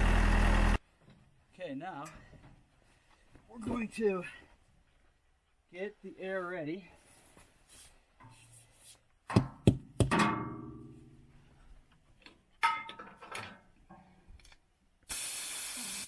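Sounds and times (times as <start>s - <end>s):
metal clanks: 9.3s - 11.3s, 12.6s - 14.1s
compressed air hiss: 15.1s - 16.0s.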